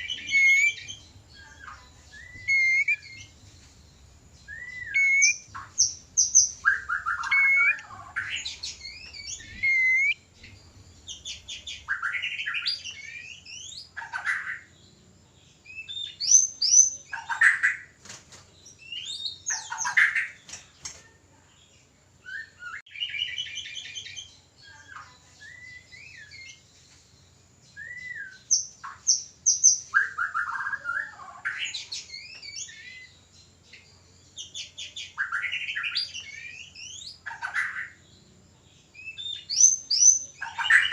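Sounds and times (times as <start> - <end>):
bird whistling and trilling: 0.0 - 3.3, 4.5 - 10.2, 27.8 - 33.1, 39.0 - 40.9.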